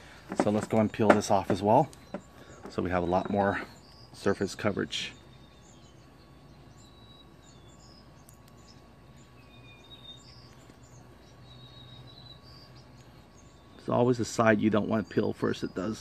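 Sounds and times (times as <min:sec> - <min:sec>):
low steady hum: 0:00.0 - 0:16.0
high bird chirps: 0:01.6 - 0:16.0.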